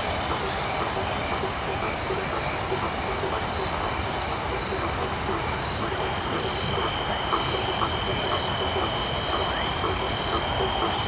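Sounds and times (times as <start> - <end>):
frogs calling: 0.1 - 11.0
insects trilling: 0.1 - 11.0.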